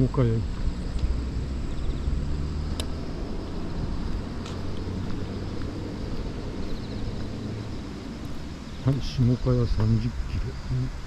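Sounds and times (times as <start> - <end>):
car engine and tyres rumbling: 0.0 - 11.0
faint insect chirps: 0.0 - 11.0.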